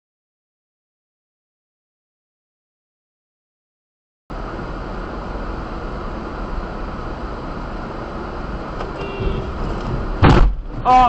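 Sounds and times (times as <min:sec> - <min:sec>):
vehicle road and engine noise: 0:04.3 - 0:11.0.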